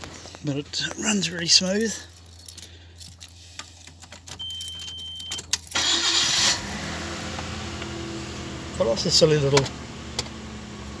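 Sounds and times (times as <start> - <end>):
engine starter cranking: 4.2 - 7.3
beep: 4.4 - 5.5
car engine idling: 5.5 - 11.0.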